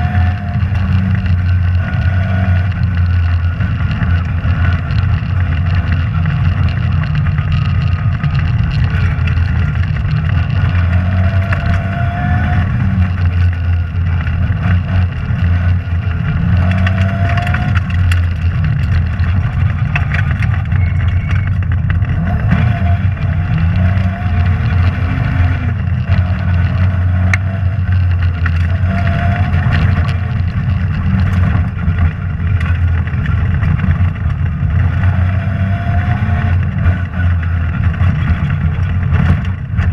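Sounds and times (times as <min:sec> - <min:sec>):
rally car engine revving: 0:00.0 - 0:39.9
sharp ticks and knocks: 0:00.1 - 0:39.9.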